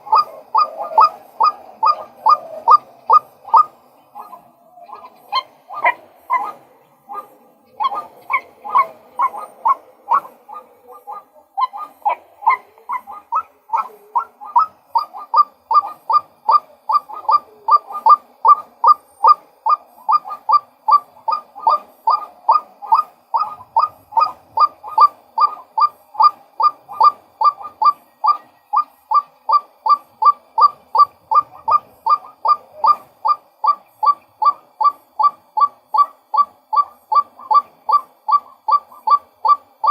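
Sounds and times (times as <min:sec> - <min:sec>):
waterhen repeated calls: 0:00.0 - 0:39.9.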